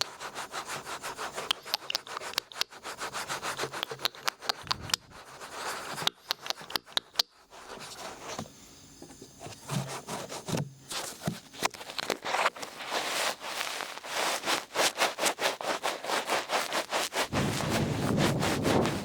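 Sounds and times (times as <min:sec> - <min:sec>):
ear pick scratching in ear: 0:12.3 - 0:19.0.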